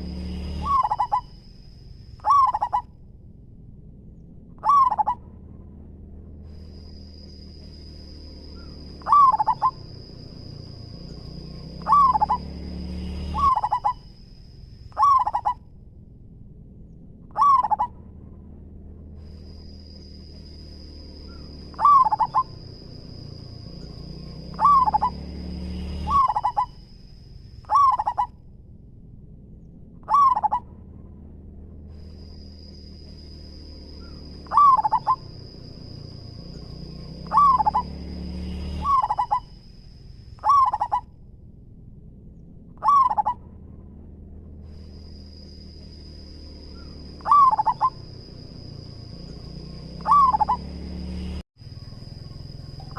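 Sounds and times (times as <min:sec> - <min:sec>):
dove cooing: 0:00.0 - 0:01.3, 0:02.2 - 0:02.9, 0:04.6 - 0:05.2, 0:08.6 - 0:10.5, 0:11.8 - 0:12.5, 0:13.2 - 0:14.0, 0:15.0 - 0:15.6, 0:17.3 - 0:17.9, 0:21.3 - 0:22.7, 0:24.5 - 0:25.2, 0:26.1 - 0:26.7, 0:27.7 - 0:28.3, 0:30.0 - 0:30.7, 0:34.0 - 0:35.4, 0:37.2 - 0:38.0, 0:38.8 - 0:39.4, 0:40.4 - 0:41.0, 0:42.8 - 0:43.4, 0:46.8 - 0:48.2, 0:50.0 - 0:50.7
high-pitched whine: 0:00.0 - 0:03.1.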